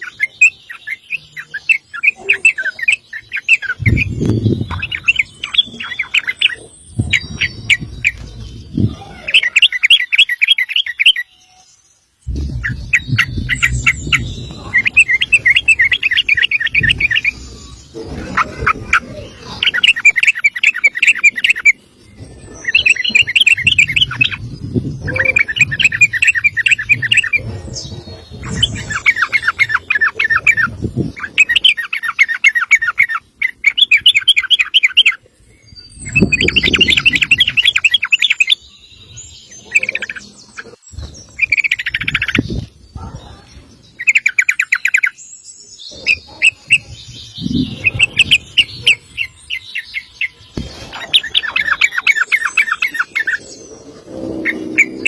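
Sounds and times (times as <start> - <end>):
bird singing rolling trill: 0.0 - 55.0
low rumbling noise: 3.7 - 9.4, 12.2 - 31.7, 50.4 - 55.0.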